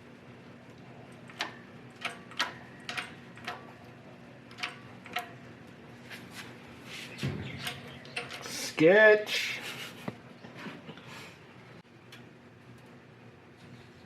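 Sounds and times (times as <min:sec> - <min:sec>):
sharp metal clicks: 0:01.2 - 0:03.7, 0:04.5 - 0:05.4.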